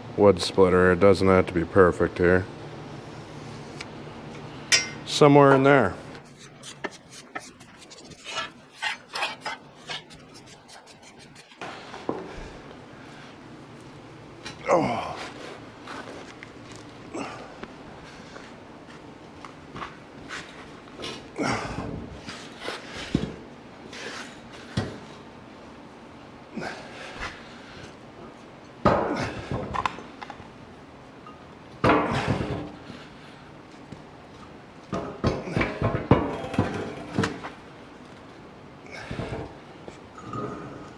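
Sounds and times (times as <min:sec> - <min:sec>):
hand tool scraping steel plate: 0:06.2 - 0:11.7
heavy steel pieces knocking and clanking: 0:35.0 - 0:37.5.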